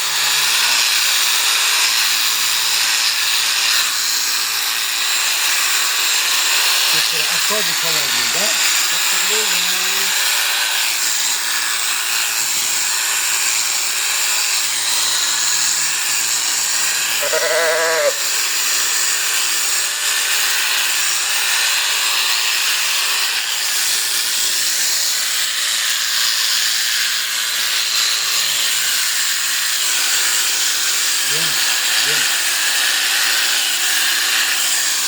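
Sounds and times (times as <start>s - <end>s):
electric shears buzzing: 0.0s - 35.0s
sheep bleating: 17.1s - 18.3s.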